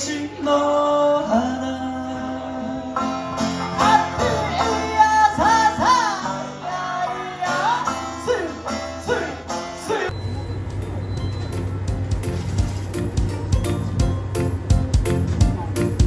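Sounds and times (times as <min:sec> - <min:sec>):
plucked string melody: 0:02.8 - 0:10.1, 0:11.4 - 0:16.0.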